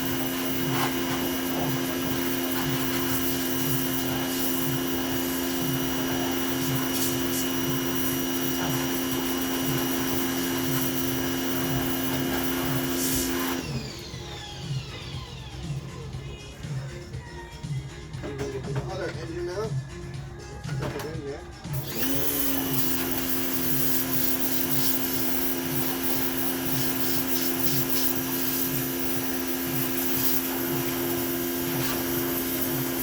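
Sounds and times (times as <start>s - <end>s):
water jet hissing: 0.0s - 13.9s, 21.7s - 33.0s
pressure washer motor hum: 0.0s - 17.1s, 20.7s - 33.0s.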